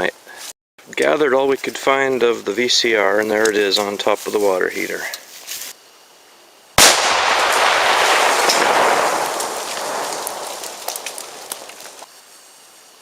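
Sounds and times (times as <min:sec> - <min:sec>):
loud explosion blast: 0:06.8 - 0:12.0
small ticks: 0:09.4 - 0:12.1.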